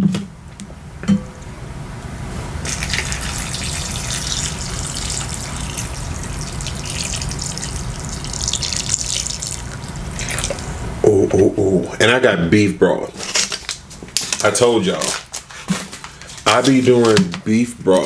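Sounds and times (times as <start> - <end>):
broth pouring into a bowl: 2.6 - 10.8.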